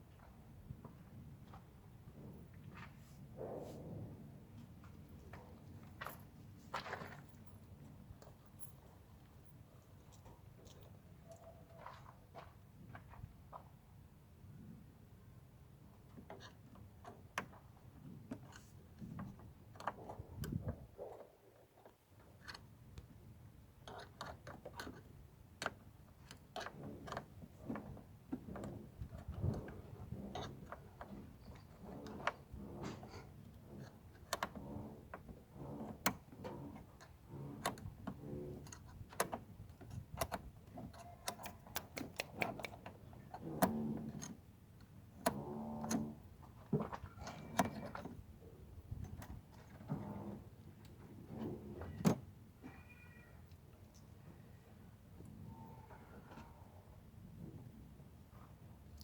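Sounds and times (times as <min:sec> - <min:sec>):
hand tools clicking and tapping: 0:40.9 - 0:42.9.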